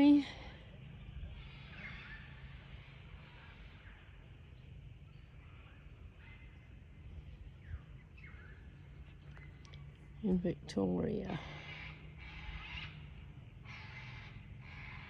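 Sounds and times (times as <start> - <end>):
low steady rumble: 0.0 - 15.0
bird calls: 1.0 - 4.3, 5.1 - 10.2, 11.3 - 15.0.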